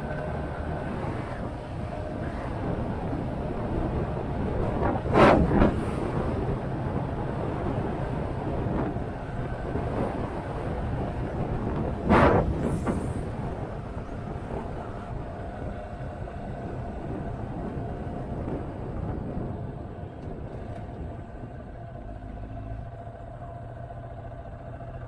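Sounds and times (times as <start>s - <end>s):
loud whooshes: 12.0s - 13.6s.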